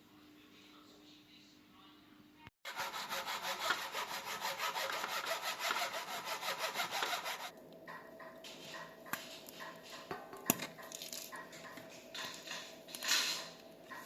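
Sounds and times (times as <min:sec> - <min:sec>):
hand saw cutting: 0:02.6 - 0:07.5.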